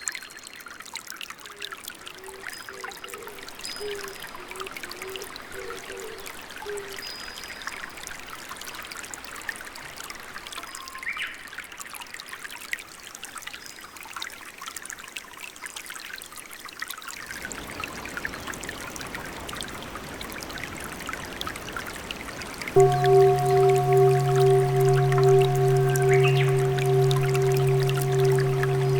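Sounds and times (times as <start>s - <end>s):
water trickling and dripping: 22.8s - 28.9s.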